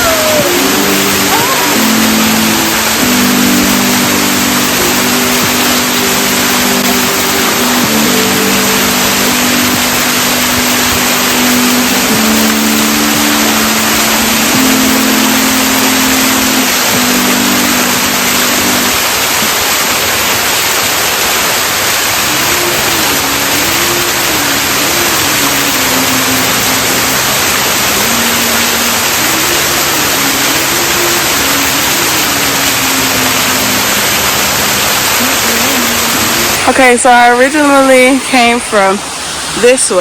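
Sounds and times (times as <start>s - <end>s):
faint wavering melody: 0.0s - 19.9s
waterfall rushing: 0.0s - 40.0s.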